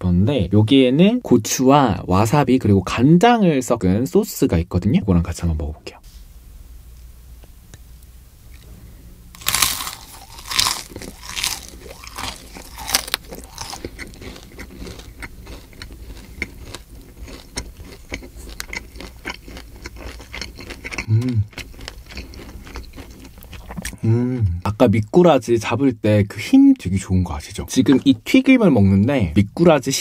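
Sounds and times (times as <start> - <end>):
crunchy fried food chewing: 9.4 - 24.0.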